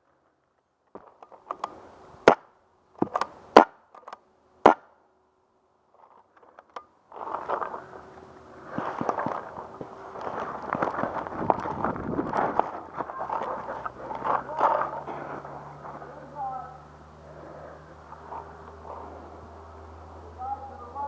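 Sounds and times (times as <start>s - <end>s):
quick crunching footsteps: 8.6s - 16.3s.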